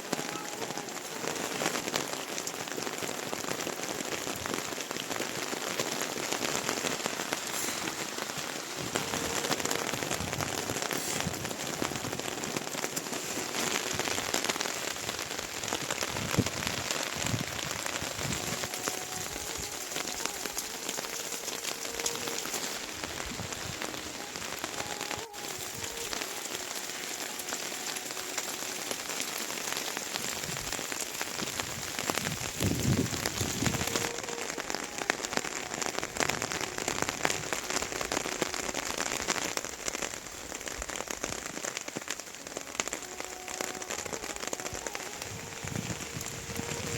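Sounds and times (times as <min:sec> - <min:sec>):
rain pattering: 0:00.0 - 0:46.9.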